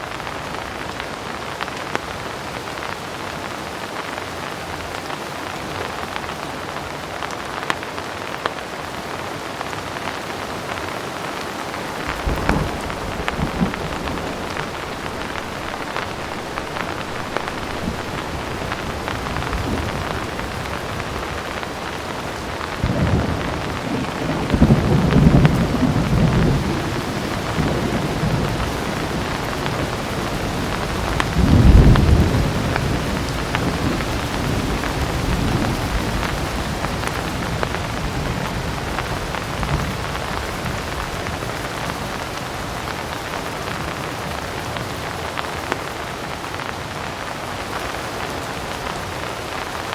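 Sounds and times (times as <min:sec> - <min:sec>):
heavy rain falling: 0:00.0 - 0:49.9
thunder rolling: 0:11.9 - 0:41.2.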